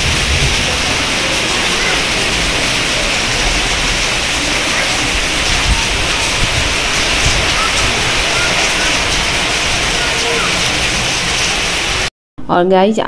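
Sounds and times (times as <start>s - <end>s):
heavy rain falling: 0.0s - 12.1s.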